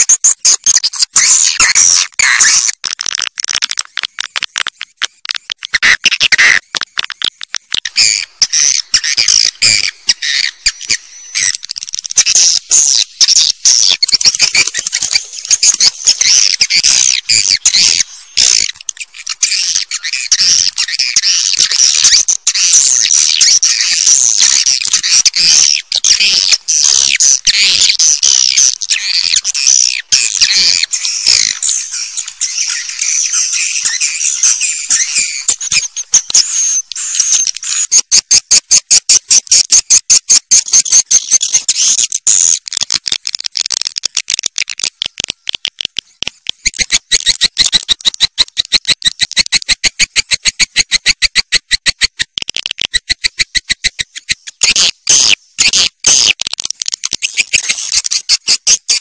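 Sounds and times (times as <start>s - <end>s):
birds chirping rapidly: 7.7s - 42.6s.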